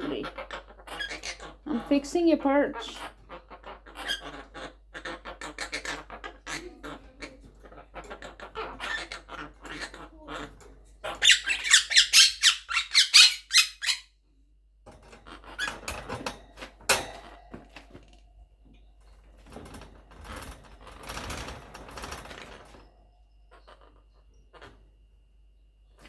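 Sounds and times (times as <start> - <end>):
parrot squawking: 0.0 - 14.1, 23.5 - 24.8
scratching and rustling: 2.8 - 11.3, 18.8 - 24.9.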